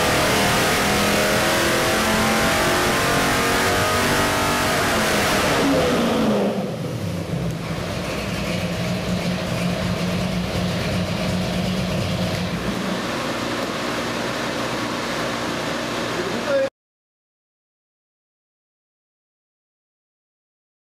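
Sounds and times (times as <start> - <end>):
engine idling: 6.6 - 15.4.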